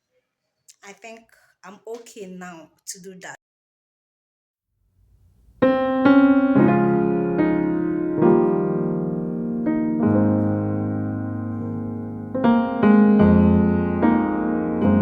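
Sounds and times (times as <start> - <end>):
slow piano chords: 5.6 - 15.0.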